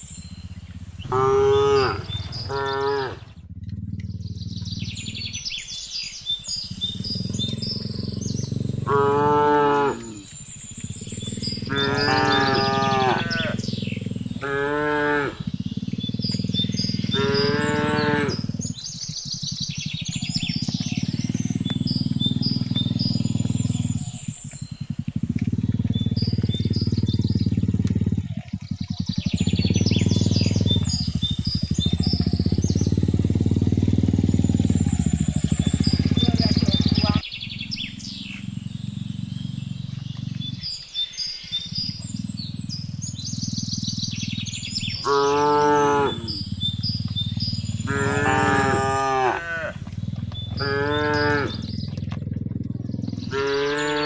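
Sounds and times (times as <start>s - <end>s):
low rumbling: 0.0s - 54.0s
cattle mooing: 1.0s - 3.3s, 6.9s - 18.6s, 45.0s - 54.0s.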